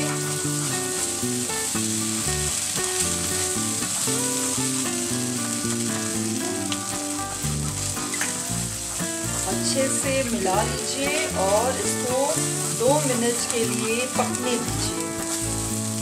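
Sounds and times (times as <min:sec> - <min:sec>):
background music: 0:00.0 - 0:16.0
onion sizzling in a pan: 0:00.0 - 0:16.0.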